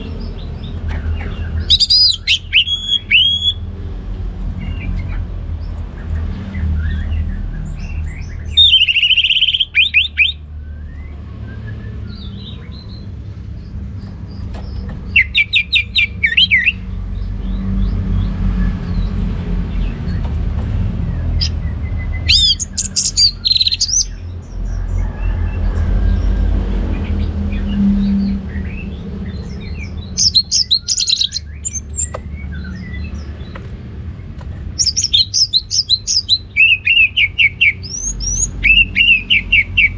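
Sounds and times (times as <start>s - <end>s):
thrush singing whistled phrases: 1.7s - 3.6s.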